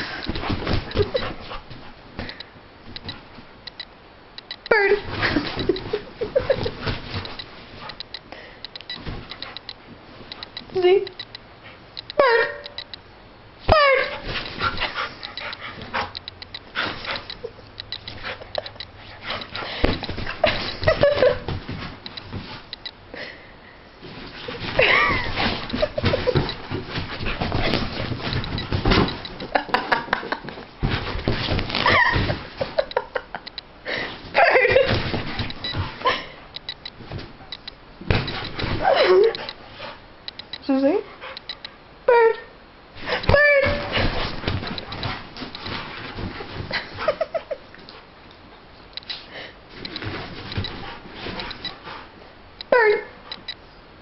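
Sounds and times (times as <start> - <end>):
dog panting: 14.1 - 21.2
rustling: 23.9 - 41.6, 43.0 - 52.4.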